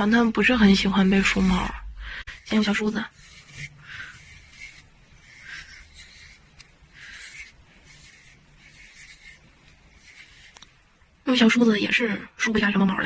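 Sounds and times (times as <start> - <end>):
comb rasping through cat fur: 2.2 - 10.8.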